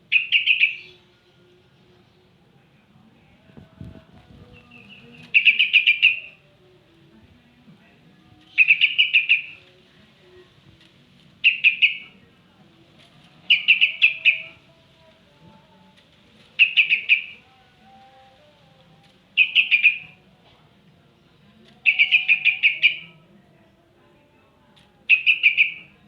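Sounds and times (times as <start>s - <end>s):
bird chattering calls: 11.4s - 12.0s, 13.5s - 14.5s, 16.6s - 17.4s, 19.4s - 20.1s, 21.8s - 23.0s, 25.1s - 25.8s.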